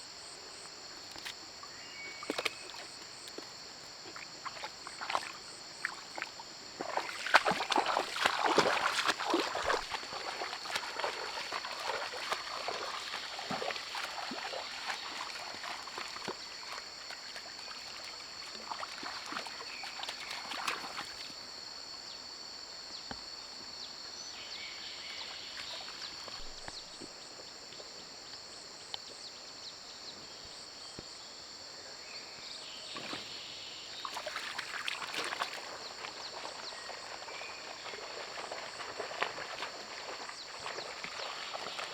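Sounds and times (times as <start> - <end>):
insects calling: 0.0 - 41.9
splashing through shallow water: 1.0 - 21.5, 24.9 - 27.1, 32.9 - 41.9.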